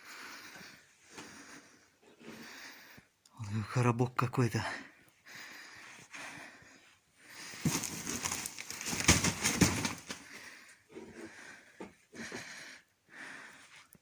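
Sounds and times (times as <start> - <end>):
rustling and crackling debris: 7.3 - 10.6.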